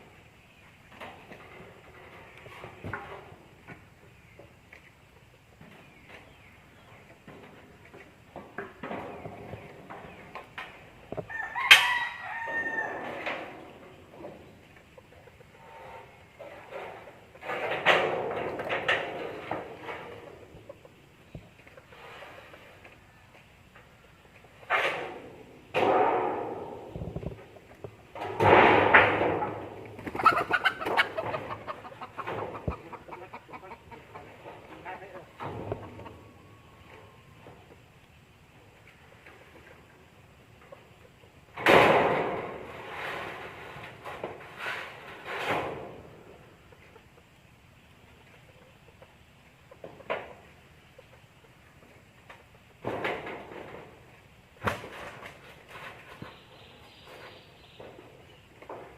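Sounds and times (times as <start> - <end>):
rooster crowing: 11.3 - 13.2.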